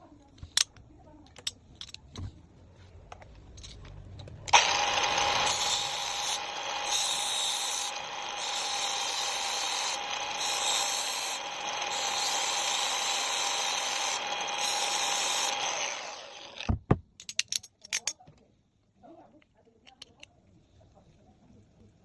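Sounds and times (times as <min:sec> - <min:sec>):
power tool running: 0:04.5 - 0:16.8.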